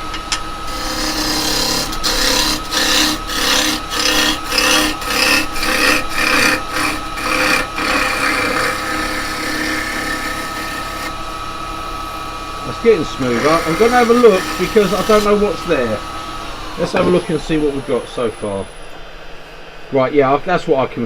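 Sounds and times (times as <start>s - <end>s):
chisel scraping wood on lathe: 0.0s - 19.0s
lathe humming: 0.0s - 20.4s.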